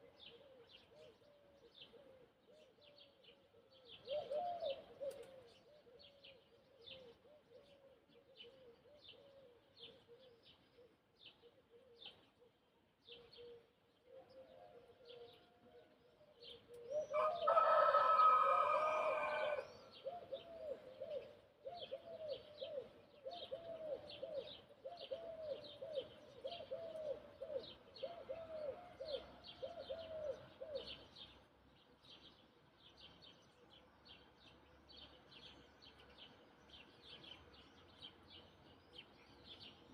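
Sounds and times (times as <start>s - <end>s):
small birds chirping: 0.0s - 39.9s
rooster crowing: 17.1s - 19.8s.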